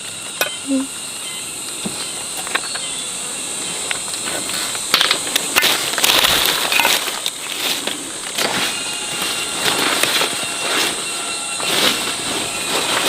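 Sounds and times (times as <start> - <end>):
insects droning: 0.0 - 13.0
rustling: 3.6 - 13.0.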